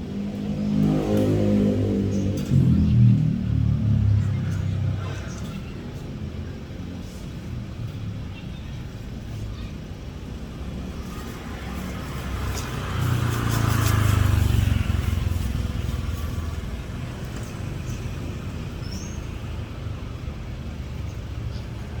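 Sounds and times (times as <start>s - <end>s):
motor vehicle passing: 0.0s - 6.3s, 10.3s - 22.0s
background traffic rumble: 0.0s - 22.0s.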